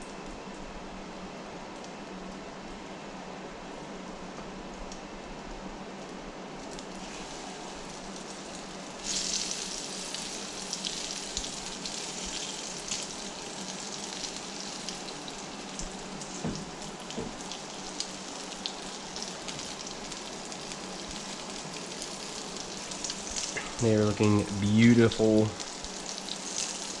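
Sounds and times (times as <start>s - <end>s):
food deep-frying in oil: 6.6s - 27.0s.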